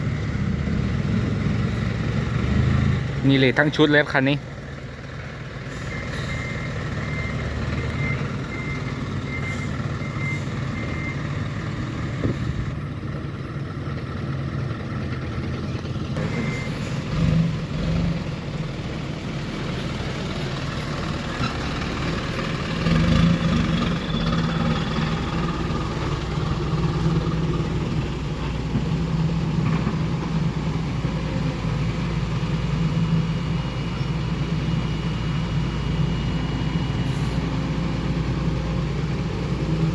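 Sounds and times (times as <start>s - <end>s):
reversing beeper: 0.0s - 2.2s, 5.7s - 11.5s, 16.2s - 17.6s, 23.1s - 25.6s, 31.6s - 39.9s
diesel truck engine running: 0.0s - 39.9s.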